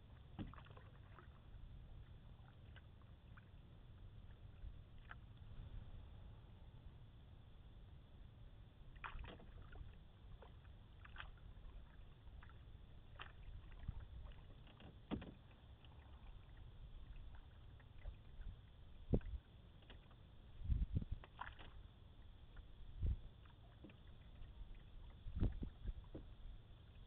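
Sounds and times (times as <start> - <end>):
paddle splashes and drips: 0.0 - 5.8, 8.9 - 27.0
low steady rumble: 0.0 - 27.0
paddle knocking against hull: 0.2 - 1.3, 9.0 - 9.8, 13.1 - 16.0, 22.6 - 26.4.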